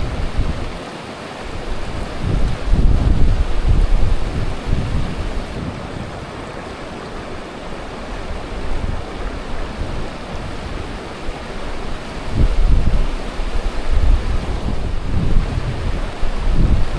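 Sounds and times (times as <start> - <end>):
wind buffeting microphone: 1.6 - 16.9.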